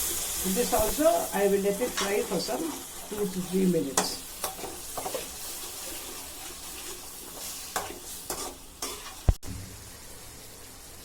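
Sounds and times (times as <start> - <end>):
puree sizzling in oil: 0.0 - 11.0
spoon stirring and knocking pan: 1.8 - 9.5.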